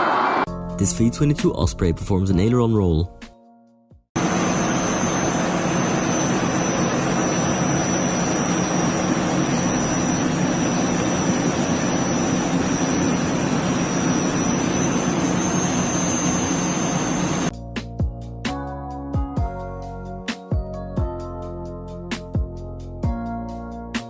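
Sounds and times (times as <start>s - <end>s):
jet engine roaring: 0.0s - 0.5s, 4.2s - 17.5s.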